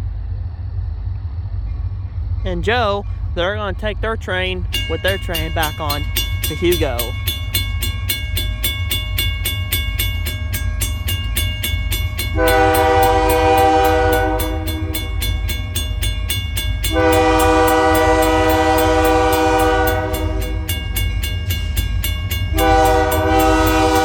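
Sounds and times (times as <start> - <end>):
deep diesel engine rumble: 0.0 - 24.0
bell ringing rapidly: 2.6 - 18.4, 19.6 - 24.0
locomotive horn blasts: 12.2 - 15.3, 16.8 - 21.0, 22.5 - 24.0.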